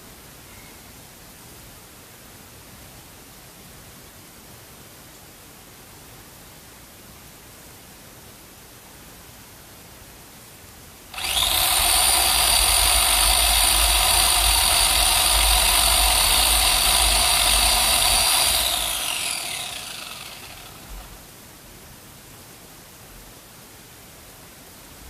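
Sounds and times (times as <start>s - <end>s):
electric chainsaw motor whining: 11.1s - 21.2s.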